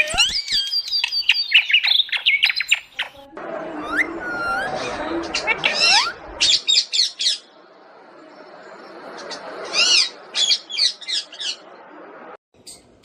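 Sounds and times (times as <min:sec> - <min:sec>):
parrot squawking and chirping: 0:00.0 - 0:03.2, 0:03.8 - 0:07.5, 0:09.6 - 0:11.6.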